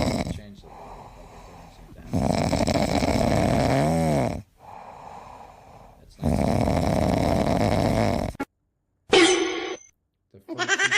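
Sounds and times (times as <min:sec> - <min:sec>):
person snoring: 0:00.0 - 0:08.4.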